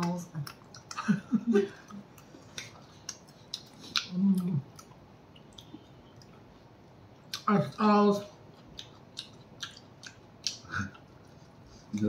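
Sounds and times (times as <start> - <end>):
wet chewing smacks: 0.4 - 1.1, 1.7 - 6.5, 8.6 - 11.1.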